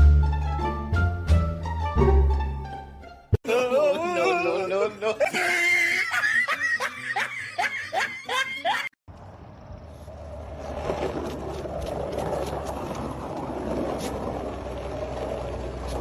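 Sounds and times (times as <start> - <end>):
rhythmic laughter: 3.4 - 9.0.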